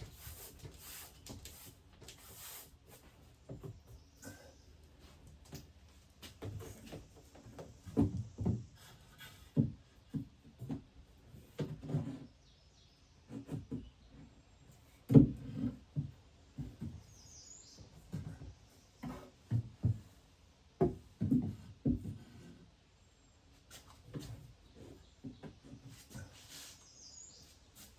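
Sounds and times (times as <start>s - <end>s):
wooden knocks and thuds: 6.2s - 12.2s, 15.1s - 17.1s, 17.8s - 20.2s, 20.8s - 22.5s.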